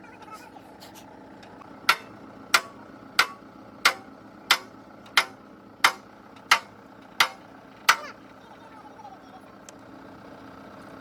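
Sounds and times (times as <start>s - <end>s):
hammer striking metal: 1.8s - 8.2s.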